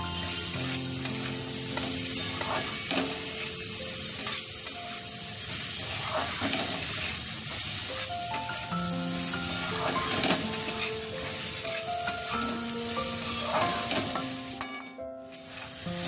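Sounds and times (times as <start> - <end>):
vegetables sizzling in oil: 0.0 - 16.0
spoon scraping pan: 0.2 - 3.6, 5.8 - 8.5, 9.4 - 12.6, 13.2 - 15.8.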